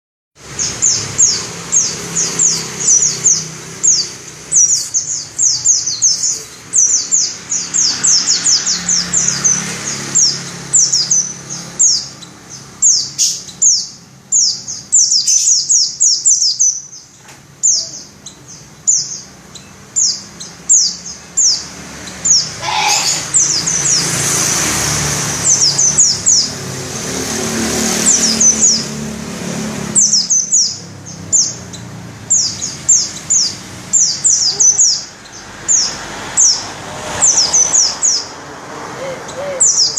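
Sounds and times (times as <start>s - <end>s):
bird singing high rolling notes: 0.4s - 24.2s.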